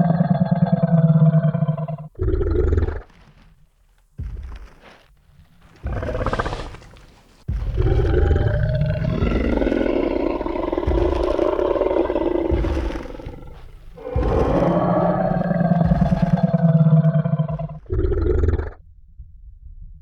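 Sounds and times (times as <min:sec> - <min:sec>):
dinosaur roar: 0:00.0 - 0:03.2, 0:05.8 - 0:07.0, 0:07.6 - 0:18.8.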